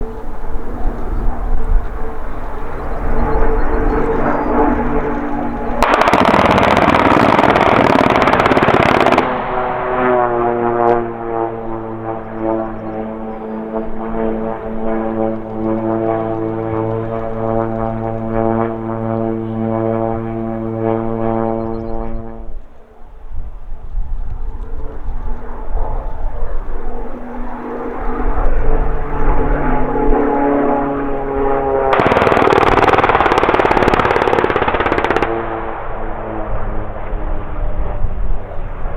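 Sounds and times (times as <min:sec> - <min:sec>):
wind rumble on microphone: 0:00.0 - 0:09.2, 0:10.3 - 0:38.9
propeller plane droning overhead: 0:00.0 - 0:38.9
rapid machine-gun fire: 0:05.5 - 0:09.6, 0:31.9 - 0:35.7.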